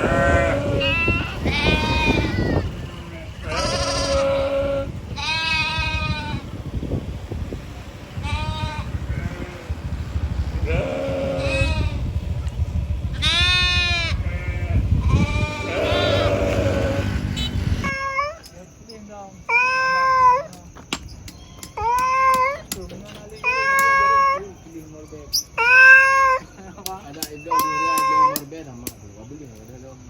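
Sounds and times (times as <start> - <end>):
sheep bleating: 0.0 - 6.5, 8.2 - 9.8, 10.6 - 12.1, 13.1 - 18.3
steady low rumble: 0.0 - 18.0.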